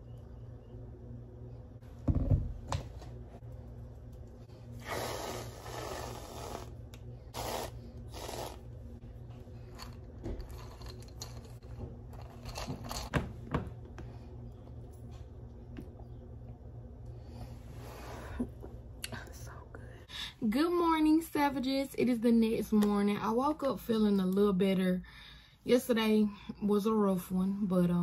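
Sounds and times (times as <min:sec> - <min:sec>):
whipped cream can hissing: 0:04.8 - 0:08.6.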